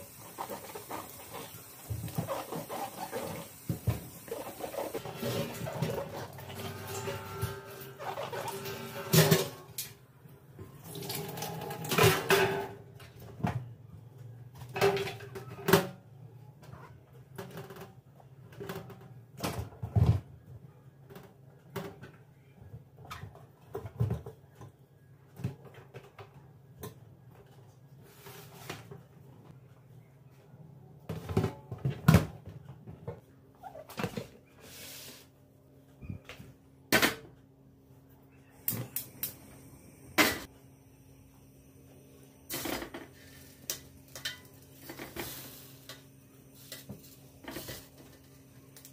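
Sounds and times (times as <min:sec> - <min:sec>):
dishes and cupboard doors clattering: 0:11.7 - 0:12.8.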